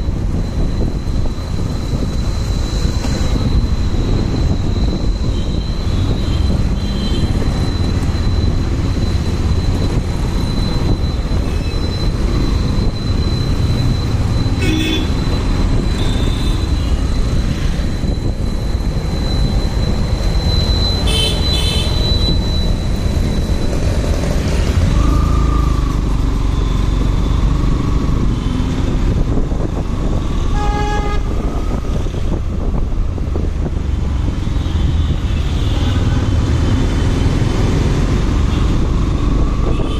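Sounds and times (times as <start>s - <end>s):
road and wind noise: 0.0s - 39.9s
vehicle horn toots: 14.6s - 15.2s, 30.5s - 31.3s.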